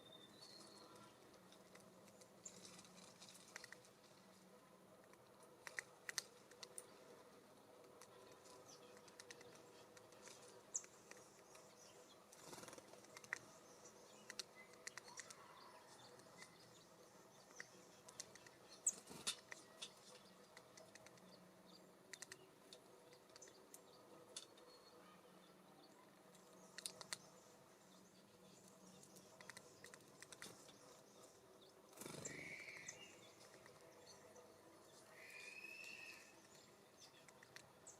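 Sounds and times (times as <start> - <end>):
beaks pecking on feeder: 5.0 - 7.0, 7.8 - 24.6, 26.3 - 27.5, 28.1 - 34.2.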